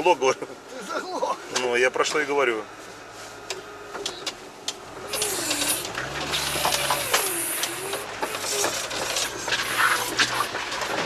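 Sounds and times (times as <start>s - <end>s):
vehicle engine: 2.4s - 11.0s
knocks and rattles: 5.0s - 11.0s
short bursts of hiss: 5.1s - 8.5s.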